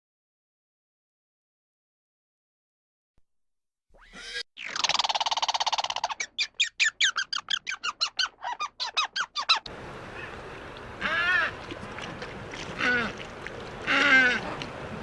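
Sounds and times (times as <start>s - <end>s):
animal calling harshly: 4.0s - 10.3s, 11.0s - 11.6s, 12.8s - 13.2s, 13.8s - 14.5s.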